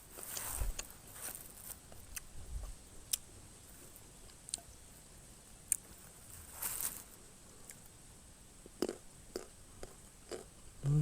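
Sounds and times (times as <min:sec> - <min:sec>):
mouth clicks and smacks eating: 0:08.8 - 0:11.0.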